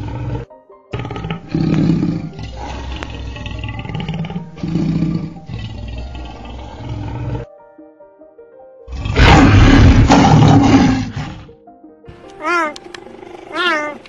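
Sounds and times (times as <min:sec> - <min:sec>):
crocodile growling: 0:00.0 - 0:07.5, 0:08.9 - 0:11.5.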